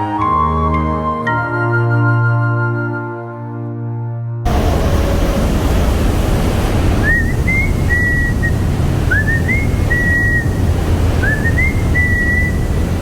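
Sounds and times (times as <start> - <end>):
waterfall roaring: 4.5 - 13.0
person whistling: 7.0 - 10.6, 11.2 - 13.0.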